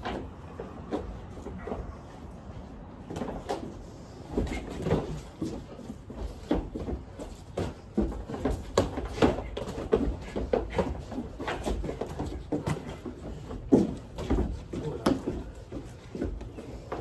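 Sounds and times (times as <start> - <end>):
boxing gloves thudding: 6.4 - 15.6.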